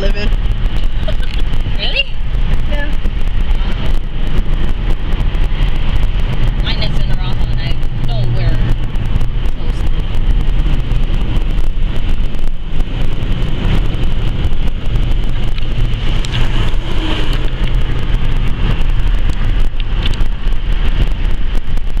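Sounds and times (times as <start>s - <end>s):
road noise from fast car: 0.0s - 22.0s
wind buffeting microphone: 0.0s - 22.0s.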